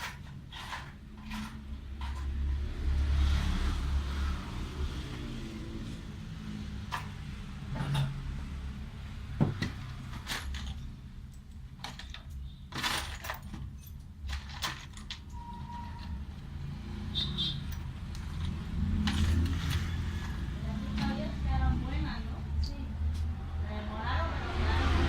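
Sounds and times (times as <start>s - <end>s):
steady low hum: 22.3s - 25.0s.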